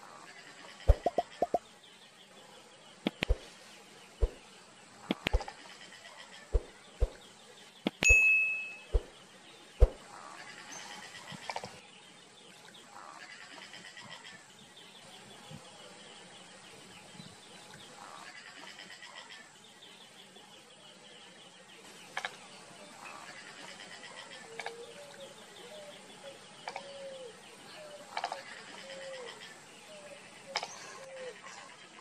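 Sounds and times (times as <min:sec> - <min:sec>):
chattering bird calls: 0:00.0 - 0:01.8, 0:02.9 - 0:11.9, 0:21.8 - 0:32.0
sharp clicks: 0:03.0 - 0:03.4.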